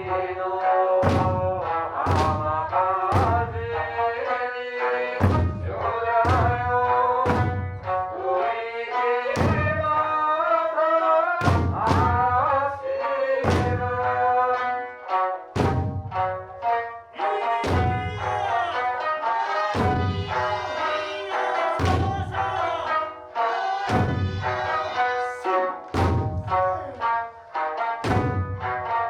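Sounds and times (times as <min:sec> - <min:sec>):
person singing: 0:00.0 - 0:15.2, 0:16.8 - 0:29.0
plucked lute: 0:00.0 - 0:29.0
heavy drum beats: 0:01.0 - 0:04.4, 0:05.1 - 0:08.3, 0:09.4 - 0:10.2, 0:11.4 - 0:12.8, 0:13.4 - 0:14.8, 0:15.5 - 0:16.9, 0:17.5 - 0:29.0.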